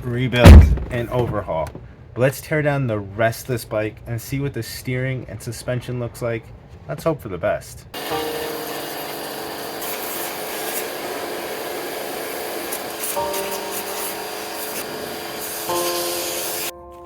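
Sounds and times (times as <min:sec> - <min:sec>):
background music chords: 0:15.7 - 0:17.0.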